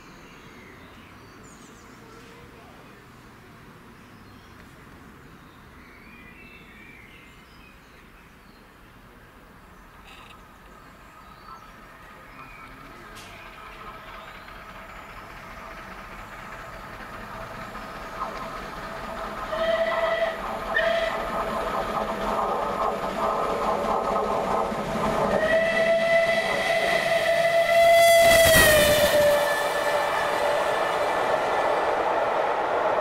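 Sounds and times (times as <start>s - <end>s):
train passing at speed: 10.5s - 33.0s
train horn blasts: 19.5s - 21.2s, 25.3s - 31.2s.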